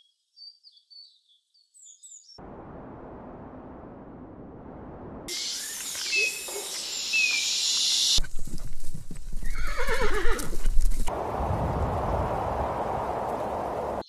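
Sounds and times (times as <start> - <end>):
wind rumble: 2.4 - 5.3, 10.4 - 14.0
horse whinnying: 9.4 - 10.8.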